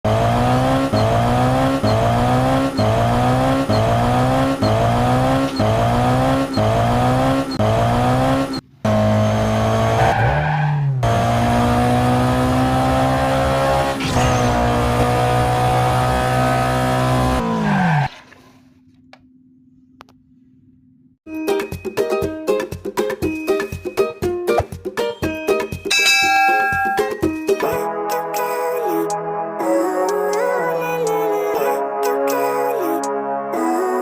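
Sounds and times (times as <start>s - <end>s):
race car engine revving: 0.0s - 18.1s.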